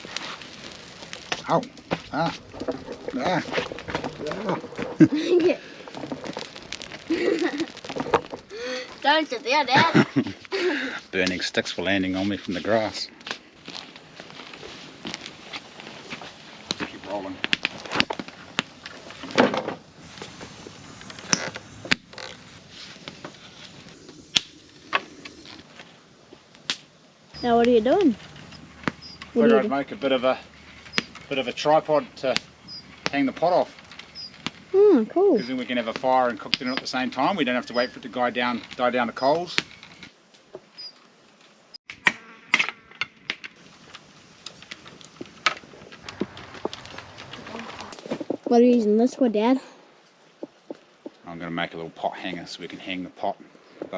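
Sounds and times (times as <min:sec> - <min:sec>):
wood clicking and snapping: 0:00.0 - 0:08.6, 0:15.0 - 0:19.9
sharp pops of fire: 0:00.0 - 0:34.8, 0:35.4 - 0:48.5
campfire crackling: 0:00.0 - 0:53.9
high-pitched insect drone: 0:36.6 - 0:38.5.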